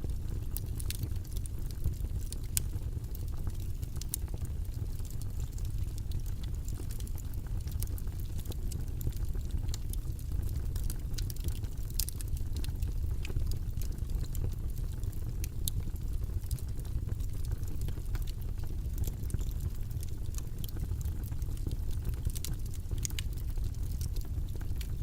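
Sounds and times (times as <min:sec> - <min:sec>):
low rumbling white noise: 0:00.0 - 0:25.0
light clicks and ticks: 0:22.3 - 0:23.3.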